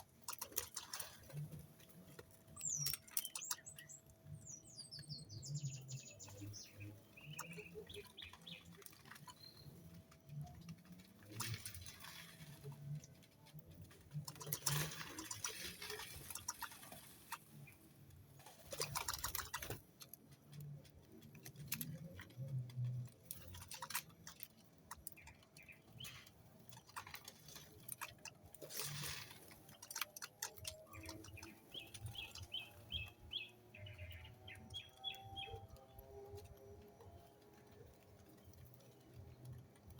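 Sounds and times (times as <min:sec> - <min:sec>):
birds chirping: 0:00.2 - 0:13.0, 0:23.2 - 0:39.8.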